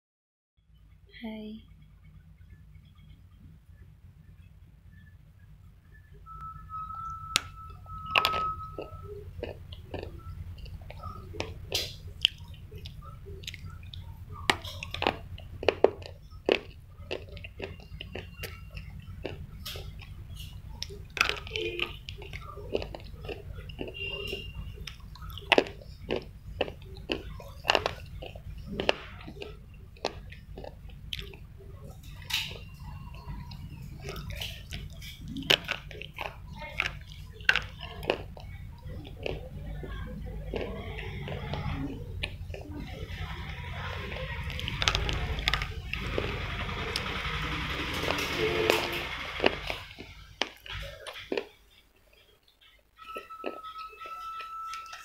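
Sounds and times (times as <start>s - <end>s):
steady low hum: 0.6s - 55.0s
crunching and snapping bites: 8.1s - 39.4s.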